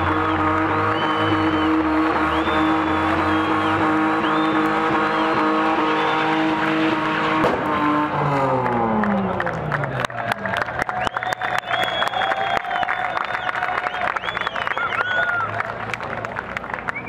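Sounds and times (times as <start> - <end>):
car engine at high revs: 0.0 - 10.7.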